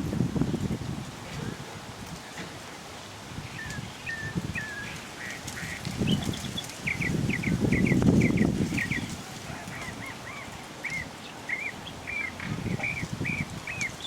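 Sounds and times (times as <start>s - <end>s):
birds chirping: 3.4s - 14.0s.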